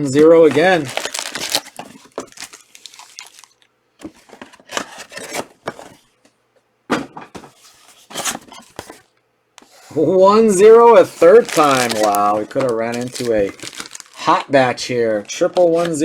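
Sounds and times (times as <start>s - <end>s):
cellophane wrappers crinkling: 0.0s - 5.4s, 10.7s - 14.7s.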